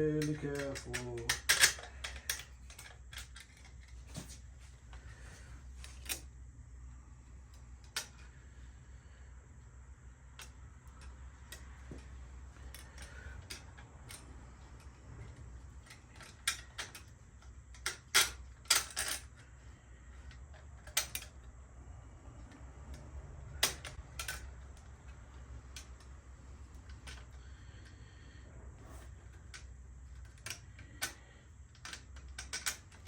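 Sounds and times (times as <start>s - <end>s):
metallic clicks and taps: 0.1s - 3.8s.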